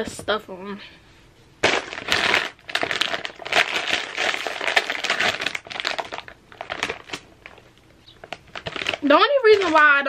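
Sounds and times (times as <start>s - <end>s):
plastic bag crackling: 1.6s - 10.0s.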